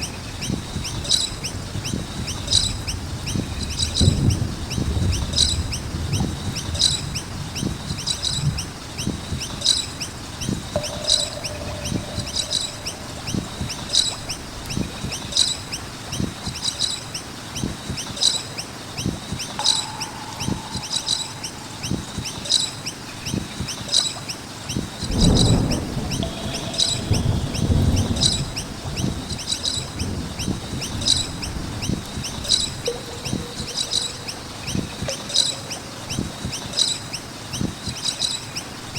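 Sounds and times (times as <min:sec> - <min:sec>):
faint bird chirps: 0:09.5 - 0:16.3, 0:19.4 - 0:24.0, 0:25.1 - 0:38.3
low rumbles and knocks: 0:10.5 - 0:15.5, 0:19.6 - 0:22.6, 0:25.0 - 0:36.8.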